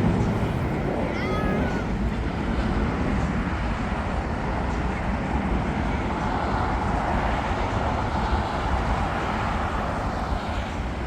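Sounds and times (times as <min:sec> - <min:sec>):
jet airliner passing overhead: 0:00.0 - 0:11.0.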